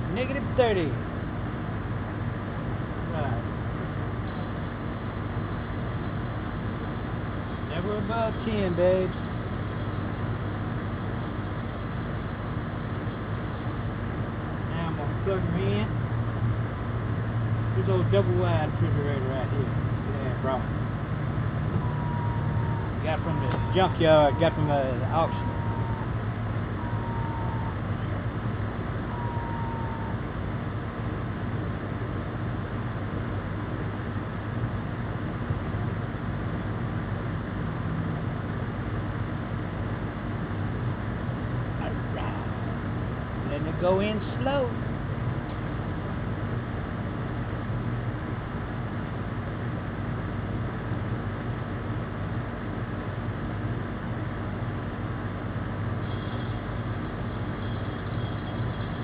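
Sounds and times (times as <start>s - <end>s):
refrigeration machine hum and hiss: 0.0s - 59.0s
faint thin whistle: 56.0s - 56.6s.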